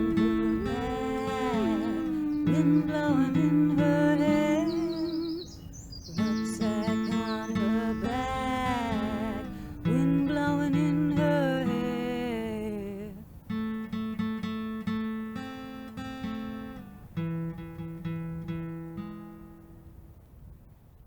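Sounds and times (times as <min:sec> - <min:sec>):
held note gliding down: 0:00.0 - 0:05.4
acoustic guitar plucking: 0:00.0 - 0:20.1.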